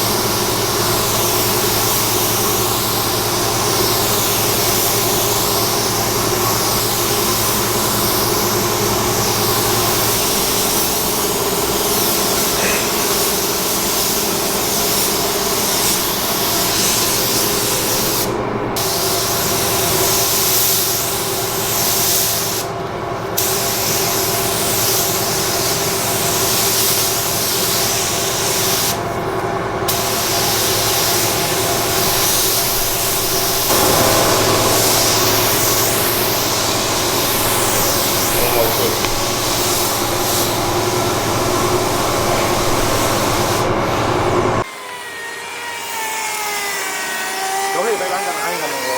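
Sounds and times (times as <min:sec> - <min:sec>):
paint spray gun hissing: 0:00.0 - 0:44.6
steady hum: 0:29.0 - 0:44.6.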